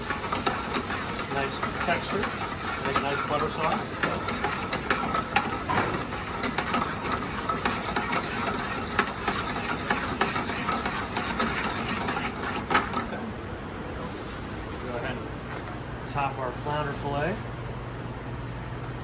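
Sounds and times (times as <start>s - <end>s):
sauce sizzling in a pan: 0.0s - 12.6s.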